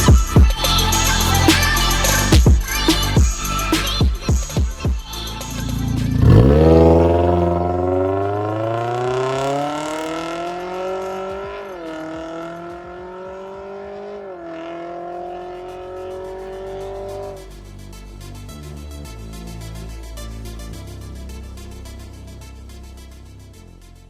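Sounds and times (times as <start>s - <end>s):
car engine accelerating hard: 5.2s - 18.0s.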